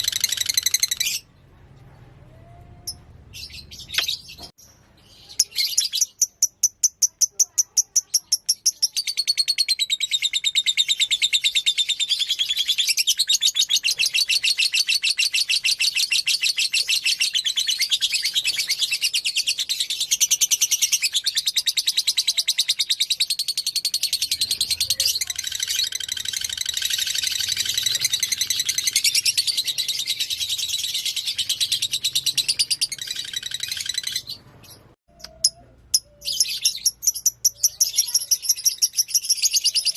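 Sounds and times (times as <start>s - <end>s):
rapid high bird chirps: 0.0s - 1.3s, 2.9s - 39.9s.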